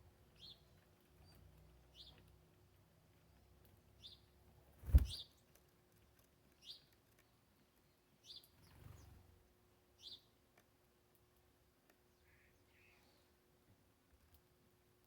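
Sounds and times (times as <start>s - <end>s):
bird chirping: 0.3s - 2.3s, 4.0s - 5.4s, 6.6s - 9.2s
soft rustle: 4.8s - 6.3s.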